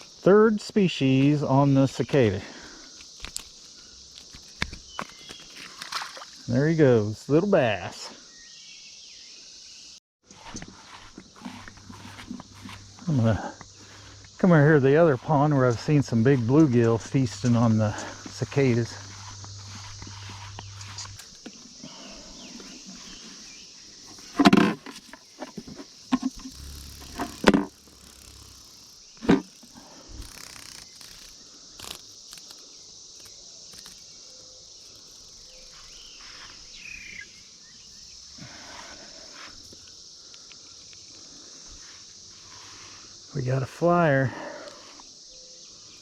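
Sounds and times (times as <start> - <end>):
cicada chorus droning: 0.0 - 46.0
knocks and handling noises: 24.1 - 26.5.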